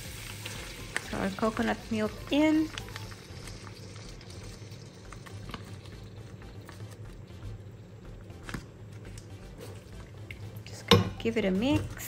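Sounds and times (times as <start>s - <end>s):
curry sizzling and bubbling in a pan: 0.0s - 7.6s.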